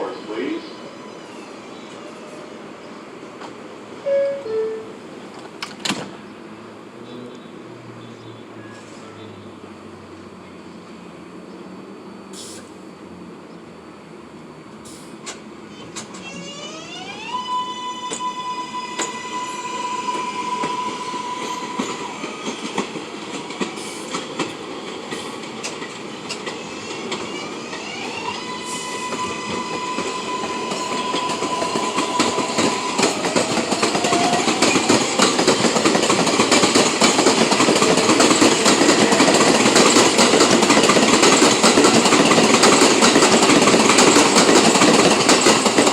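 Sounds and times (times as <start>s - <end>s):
train propulsion whining: 14.7s - 45.9s
wheels clacking over rail joints: 20.1s - 28.0s, 29.0s - 45.9s.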